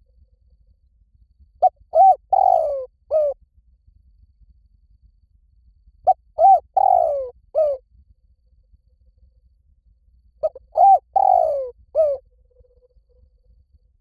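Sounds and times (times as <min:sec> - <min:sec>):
dove cooing: 0:01.6 - 0:03.4, 0:06.1 - 0:07.8, 0:10.4 - 0:12.2.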